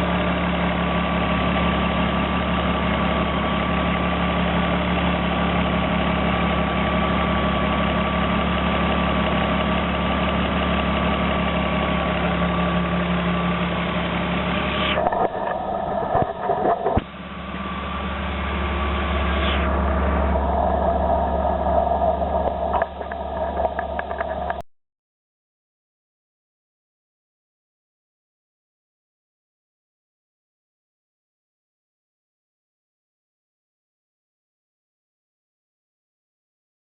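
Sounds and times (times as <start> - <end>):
car engine idling: 0.0 - 24.6.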